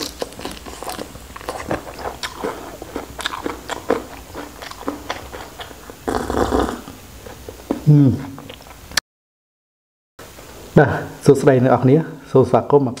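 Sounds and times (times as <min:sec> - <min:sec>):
wet crunchy chewing: 0:00.0 - 0:08.8.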